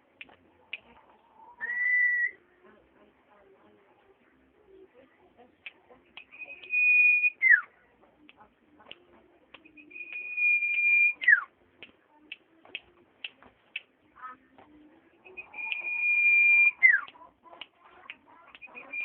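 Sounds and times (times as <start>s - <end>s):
bird whistling song: 1.5s - 2.4s, 6.2s - 7.7s, 9.6s - 11.5s, 15.2s - 17.2s, 18.6s - 19.0s
bird chip notes: 9.6s - 11.5s.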